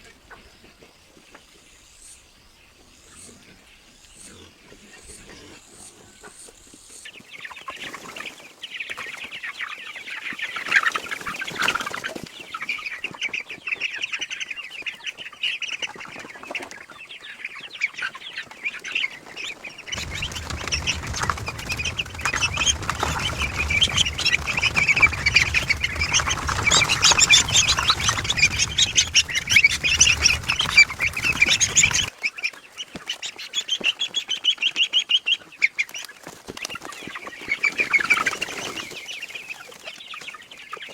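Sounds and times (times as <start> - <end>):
domestic fowl calling: 17.4 - 34.2
low rumble: 19.9 - 32.1.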